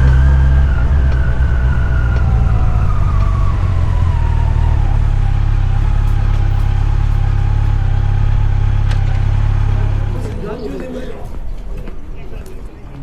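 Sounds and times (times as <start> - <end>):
engine whine: 0.0 - 13.0
heavy engine rumbling: 0.0 - 13.0.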